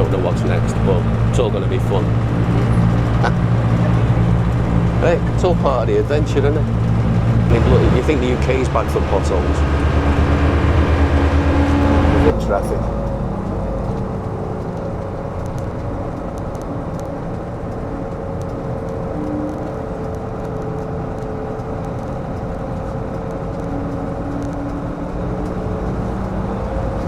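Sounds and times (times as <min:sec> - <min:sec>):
coach engine and road drone: 0:00.0 - 0:27.0
light rattles: 0:00.0 - 0:27.0.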